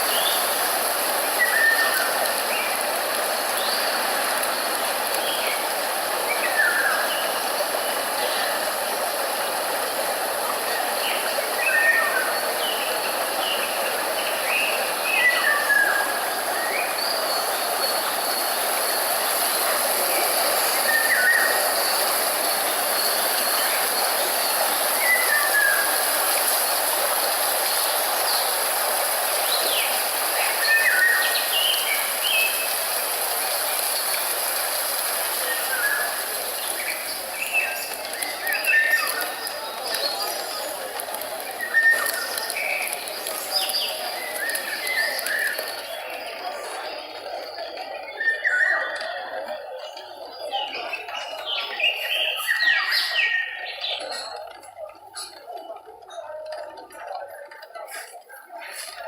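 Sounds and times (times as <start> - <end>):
white noise hiss: 0.0 - 49.8
small birds chirping: 9.4 - 54.4.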